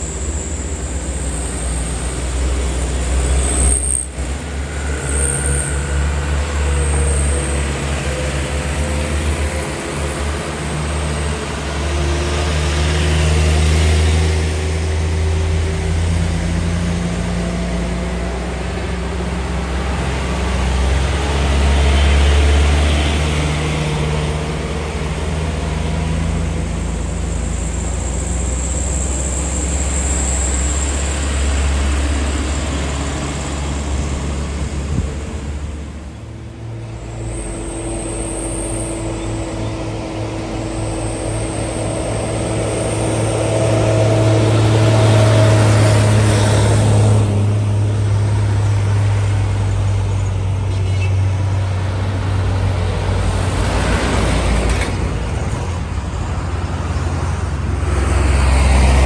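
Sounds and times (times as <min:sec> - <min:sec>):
high whine: 0:00.0 - 0:11.9, 0:26.6 - 0:51.2
diesel trucks passing: 0:00.0 - 0:59.0.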